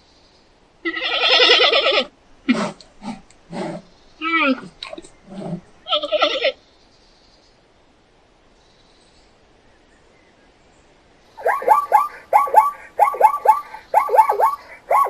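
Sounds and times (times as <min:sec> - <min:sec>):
bird chirping: 0:08.6 - 0:15.0.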